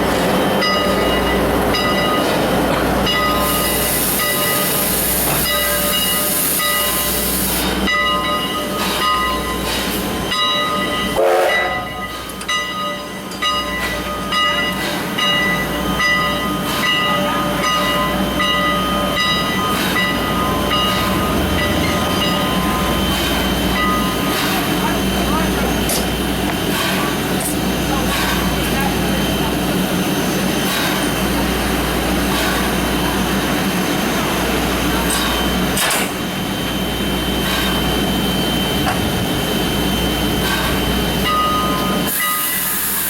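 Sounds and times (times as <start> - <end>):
train rumbling on track: 0.0 - 43.0
hiss: 3.4 - 7.8, 41.9 - 43.0.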